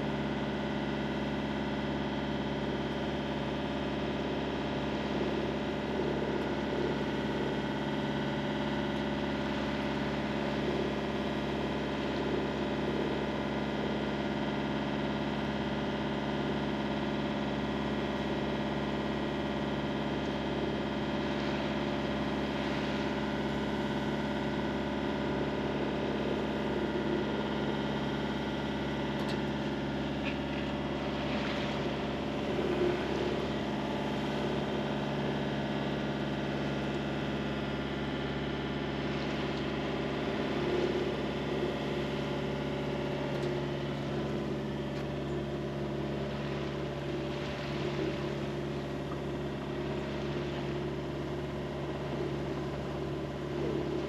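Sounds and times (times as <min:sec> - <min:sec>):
boat engine running: 0:00.0 - 0:54.0
water rushing past hull: 0:21.1 - 0:54.0.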